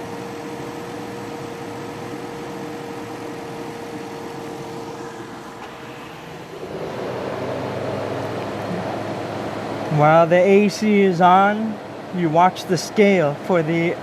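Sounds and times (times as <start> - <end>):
pickup engine idling: 0.0 - 14.0
loud rushing noise: 4.8 - 10.0.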